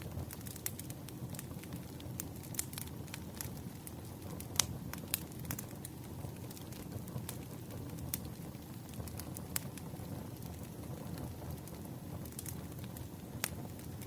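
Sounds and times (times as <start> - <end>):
fire popping and snapping: 0.0 - 14.0
low steady fire rumble: 0.0 - 14.0.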